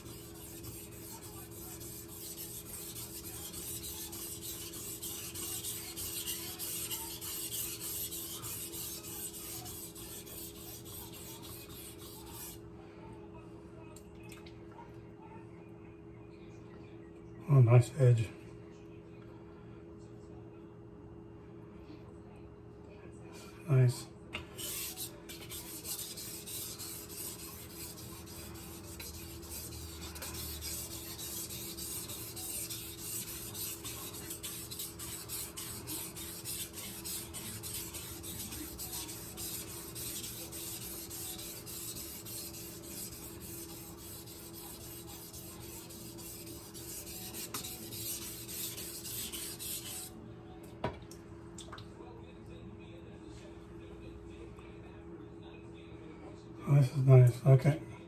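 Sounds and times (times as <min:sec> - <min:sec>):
knife scraping on whetstone: 0:00.0 - 0:12.6, 0:24.4 - 0:50.1.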